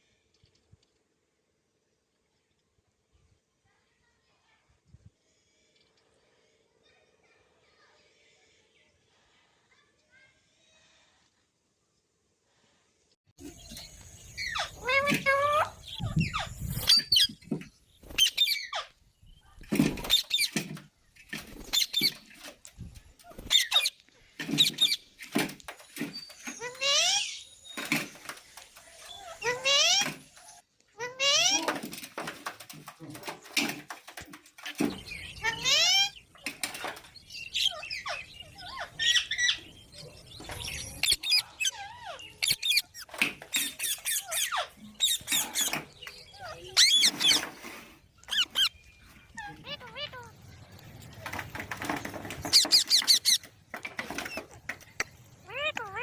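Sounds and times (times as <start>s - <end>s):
parrot chirping and squawking: 13.5s - 17.5s, 18.1s - 18.9s, 19.8s - 20.6s, 21.5s - 22.3s, 23.3s - 25.1s, 26.1s - 27.6s, 29.1s - 30.2s, 31.0s - 31.7s, 35.0s - 36.3s, 37.3s - 39.8s, 40.4s - 50.8s, 52.4s - 53.6s, 55.1s - 56.0s.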